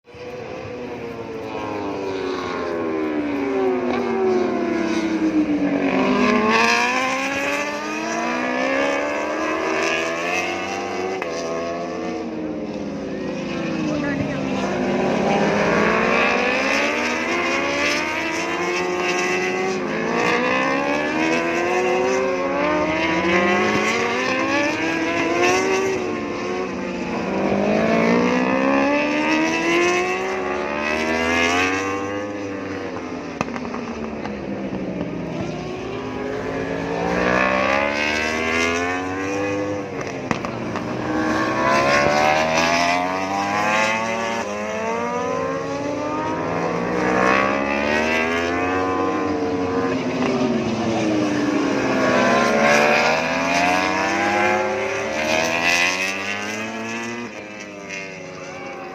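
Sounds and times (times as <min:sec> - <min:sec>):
racing motorbikes passing at high revs: 0:00.1 - 0:58.9.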